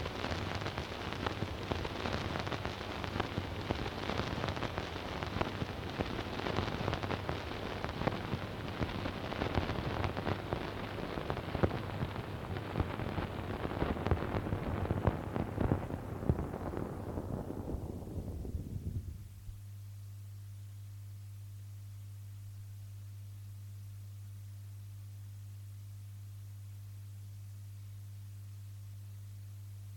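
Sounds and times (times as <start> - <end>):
record stylus crackle and hiss: 0.0 - 29.9.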